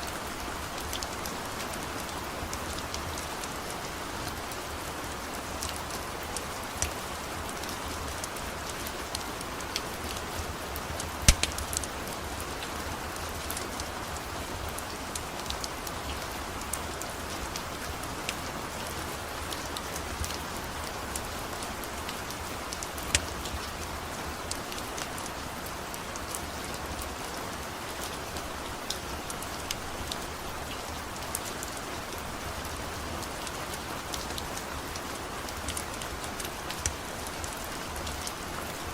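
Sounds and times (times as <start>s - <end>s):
steady rain falling: 0.0s - 38.9s
wood fire crackling and popping: 11.0s - 12.0s, 23.0s - 23.7s.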